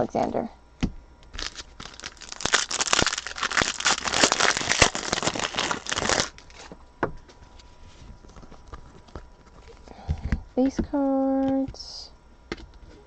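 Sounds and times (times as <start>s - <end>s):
foil wrapper crinkling: 1.3s - 6.8s.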